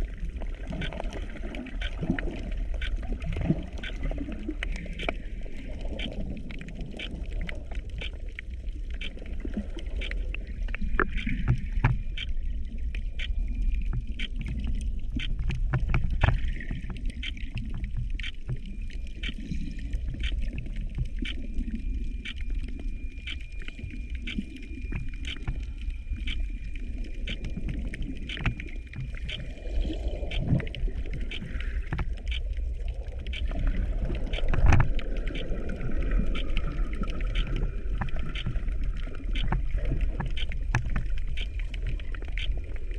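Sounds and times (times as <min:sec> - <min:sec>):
underwater clicks and crackles: 0:00.0 - 0:42.9
underwater water rumble: 0:00.0 - 0:42.9.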